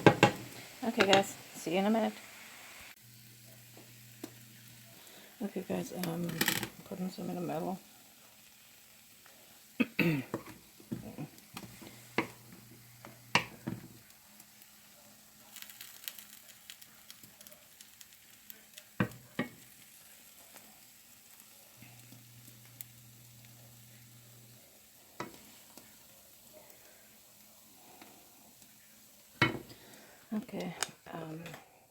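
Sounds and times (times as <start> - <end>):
utensil knocking on pan: 0.0 - 0.4, 1.0 - 1.3, 13.3 - 13.9
omelette sizzling in a pan: 0.0 - 31.4.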